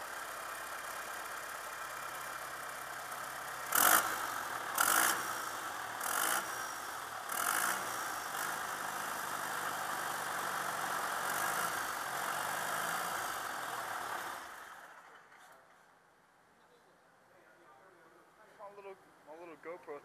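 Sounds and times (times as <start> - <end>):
diesel engine idling: 0.0 - 15.4.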